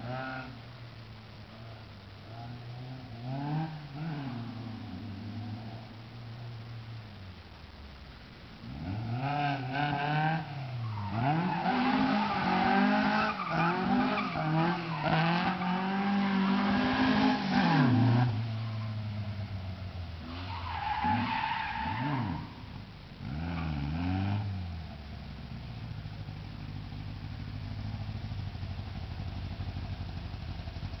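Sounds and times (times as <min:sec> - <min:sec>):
car engine revving and idling: 0:00.0 - 0:31.0.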